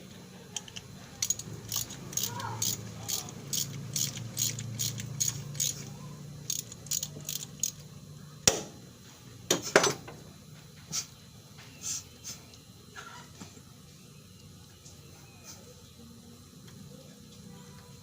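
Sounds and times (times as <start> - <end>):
metal ratchet clicking: 0.6 - 7.8.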